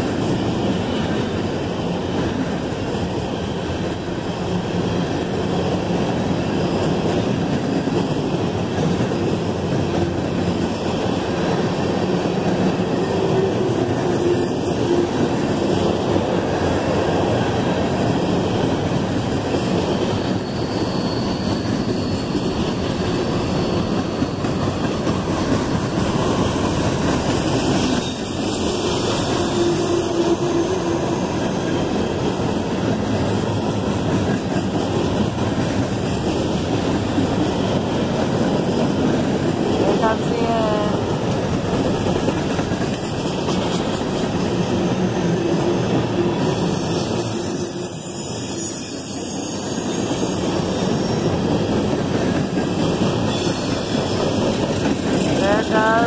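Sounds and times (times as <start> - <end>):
freight train rolling past: 0.0 - 56.0
wheel squeal: 20.1 - 25.0, 46.5 - 51.2, 53.3 - 54.4.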